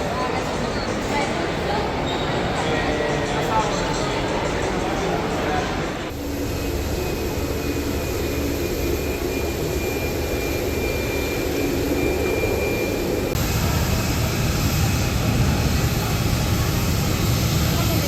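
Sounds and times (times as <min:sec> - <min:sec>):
jet engines running: 0:00.0 - 0:18.0
high whine: 0:06.1 - 0:16.6.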